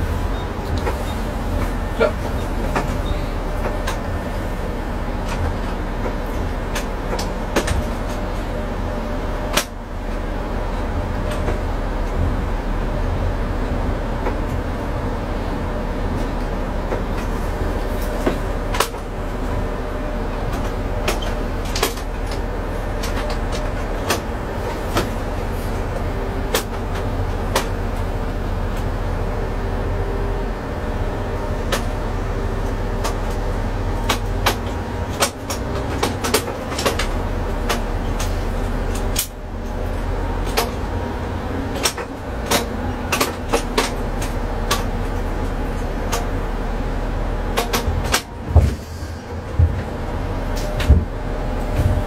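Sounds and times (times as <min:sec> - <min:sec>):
diesel train drone: 0:00.0 - 0:52.0
sharp clicks and knocks: 0:05.2 - 0:08.5, 0:20.4 - 0:25.2, 0:34.0 - 0:39.8, 0:40.4 - 0:41.0, 0:41.7 - 0:46.3, 0:47.5 - 0:48.8.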